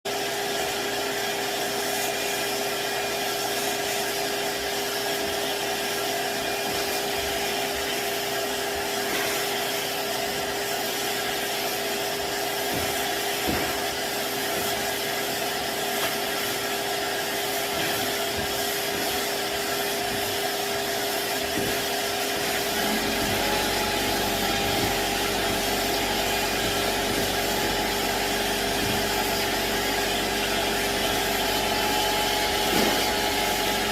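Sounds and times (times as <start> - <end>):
hiss of sanding: 1.6 - 33.9
drywall sander motor whine: 21.3 - 33.9.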